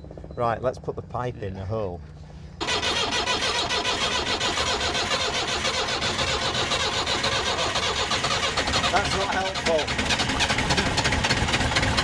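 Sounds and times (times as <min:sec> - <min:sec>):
diesel engine clattering: 0:02.6 - 0:12.0.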